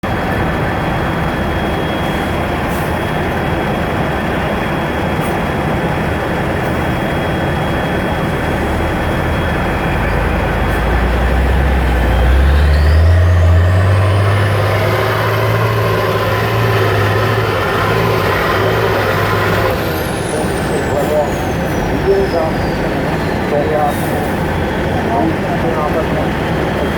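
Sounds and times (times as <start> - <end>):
diesel truck engine running hard: 0.0 - 26.9
high whine climbing in pitch: 7.0 - 23.0.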